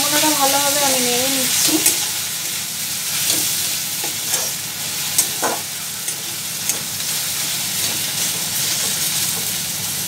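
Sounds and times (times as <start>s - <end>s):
vegetables sizzling in oil: 0.0s - 10.0s
metal spatula scraping pan: 3.2s - 9.1s.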